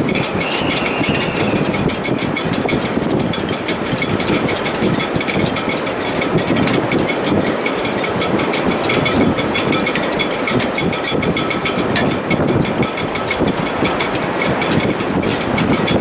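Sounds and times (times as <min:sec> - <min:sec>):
rigging rattling: 0:00.0 - 0:16.0
wind in sailboat rigging: 0:00.0 - 0:16.0
high whistle: 0:00.3 - 0:02.1.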